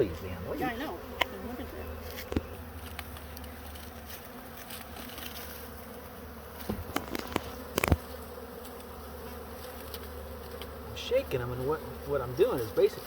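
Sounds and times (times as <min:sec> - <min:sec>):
bee swarm buzzing: 0:00.0 - 0:13.0.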